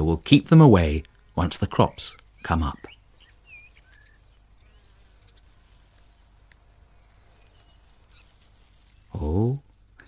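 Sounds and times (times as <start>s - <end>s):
distant bird chirps: 0.0s - 10.0s
faint open-field ambience: 0.0s - 10.0s.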